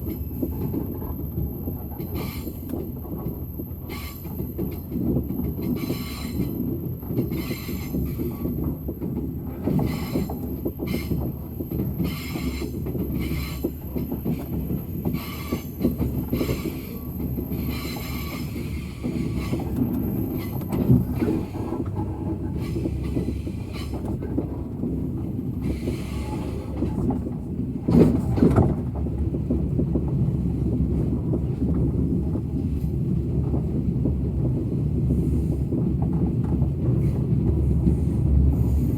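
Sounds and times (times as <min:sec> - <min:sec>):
rail clicks: 0:00.0 - 0:38.9
train rumbling on rails: 0:00.0 - 0:38.9.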